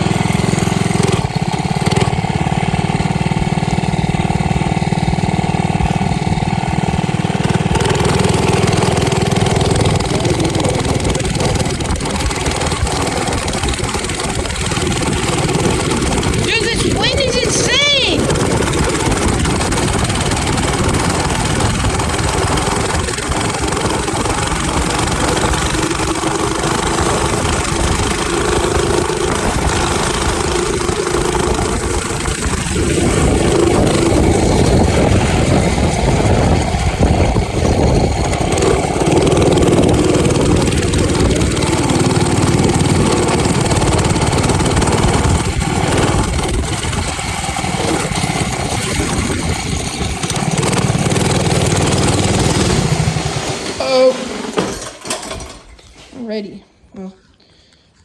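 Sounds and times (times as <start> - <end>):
small minibike engine running: 0.0 - 55.7
wind buffeting microphone: 31.4 - 50.4.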